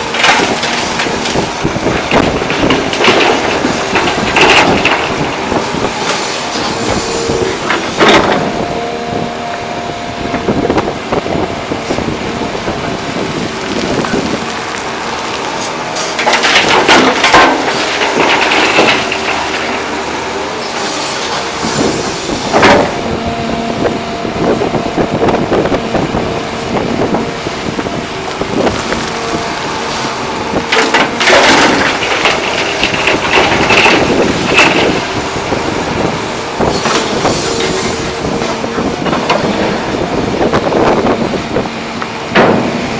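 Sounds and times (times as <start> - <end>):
rock and dirt crashing into truck: 0.0 - 8.6, 13.7 - 19.9, 28.6 - 35.3, 42.3 - 42.9
excavator diesel engine running: 0.0 - 42.9.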